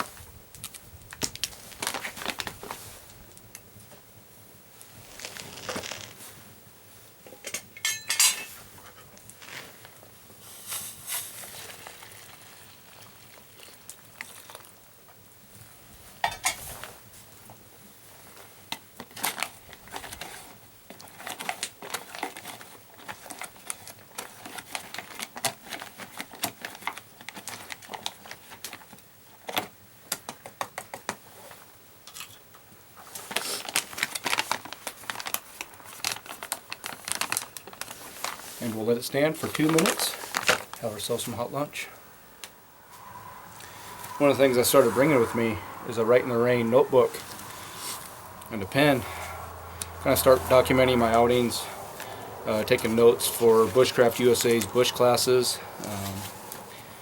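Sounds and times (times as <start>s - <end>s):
metal cookware clinking and scraping: 7.3s - 8.6s.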